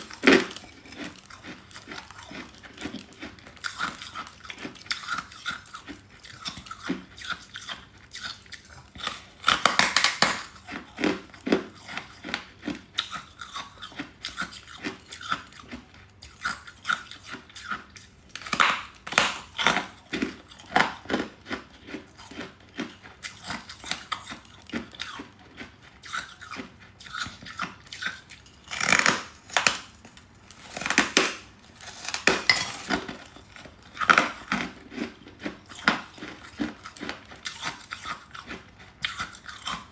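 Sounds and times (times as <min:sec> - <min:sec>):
crunching frost being chewed: 0:00.0 - 0:39.9.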